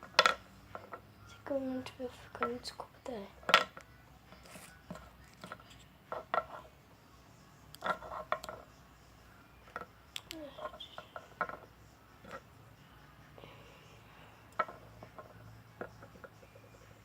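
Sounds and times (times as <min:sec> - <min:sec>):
small containers clicking and knocking: 0:00.0 - 0:01.0, 0:03.4 - 0:06.7, 0:07.7 - 0:08.7, 0:09.6 - 0:12.5, 0:14.5 - 0:16.8.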